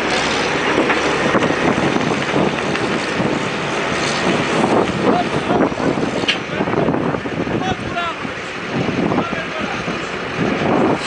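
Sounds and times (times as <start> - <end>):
dump truck engine running: 0.0 - 11.0.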